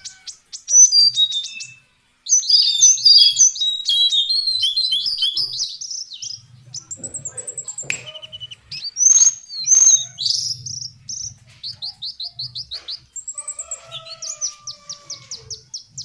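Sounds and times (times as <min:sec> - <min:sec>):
bird song of high falling notes: 0:00.0 - 0:11.3
harsh bird calls: 0:00.0 - 0:16.0
low drawn-out bird whistle: 0:02.4 - 0:05.7.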